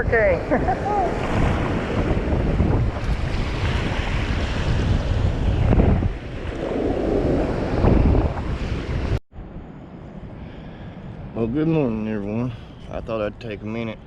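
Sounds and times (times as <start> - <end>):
ocean surf breaking: 0.0 - 9.2
gusty wind buffeting microphone: 0.0 - 14.0.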